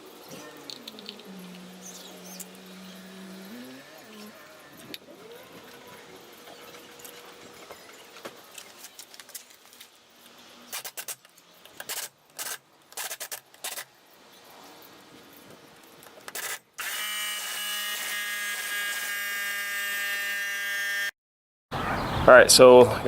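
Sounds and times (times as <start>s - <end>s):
steady buzz: 0.0s - 8.6s.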